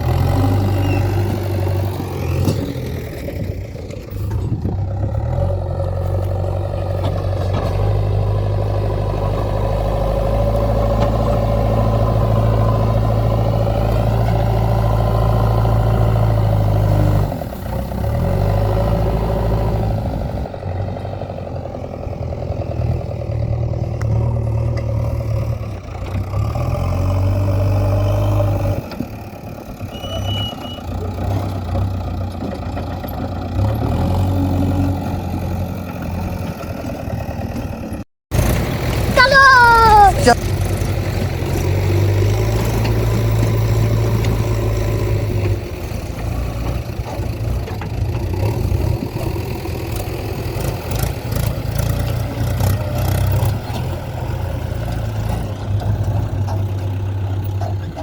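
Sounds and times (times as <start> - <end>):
diesel engine of heavy machinery: 0.0 - 58.0.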